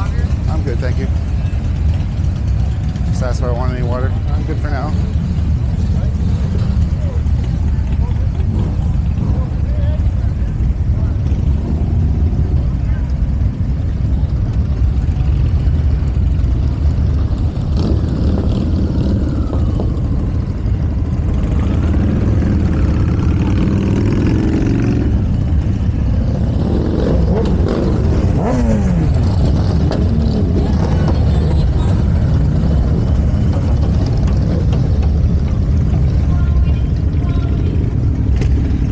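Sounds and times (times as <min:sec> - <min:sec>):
motorcycle engines revving: 0:00.0 - 0:38.9.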